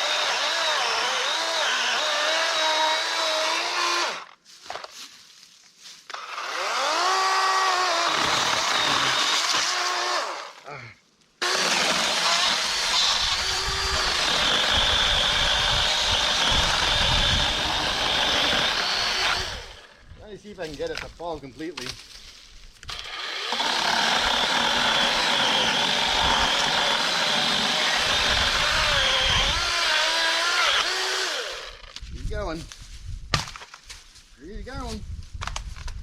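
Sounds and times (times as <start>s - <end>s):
electric chainsaw cutting wood: 0.0s - 4.3s, 6.1s - 10.6s, 11.4s - 20.0s, 22.9s - 32.0s.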